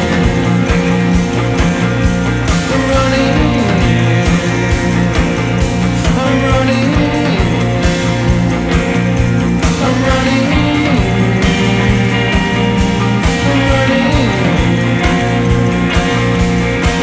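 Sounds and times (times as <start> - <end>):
bass: 0.0 - 17.0
electric guitar with sliding notes: 0.0 - 17.0
steady drum beat: 0.0 - 17.0.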